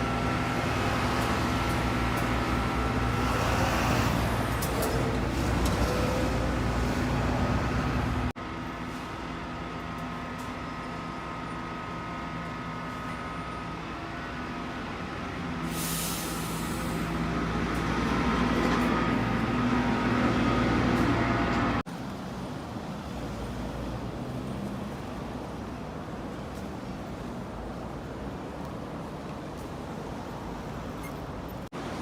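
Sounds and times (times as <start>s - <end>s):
vehicle engines running: 0.0s - 15.6s.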